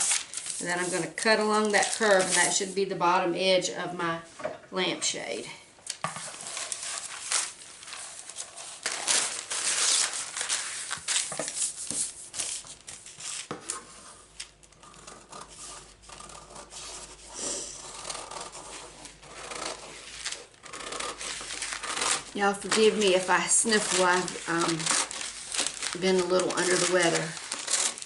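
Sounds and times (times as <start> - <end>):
paper rustling and crinkling: 0.0 - 2.7, 5.9 - 17.1, 17.9 - 28.0
scissors cutting paper: 14.4 - 28.0.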